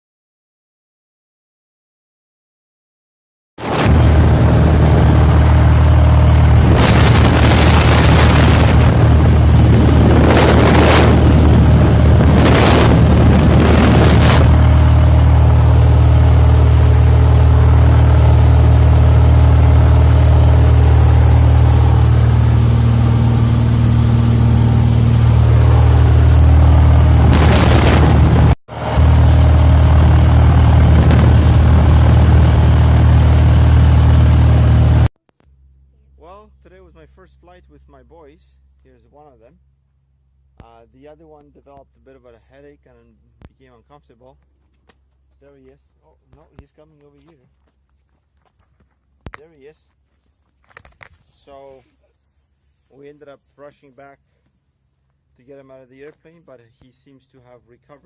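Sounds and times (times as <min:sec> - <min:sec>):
rushing noise surges: 0:03.6 - 0:05.5, 0:06.4 - 0:14.8, 0:19.9 - 0:29.3
airplane piston engine drone: 0:03.6 - 0:35.1.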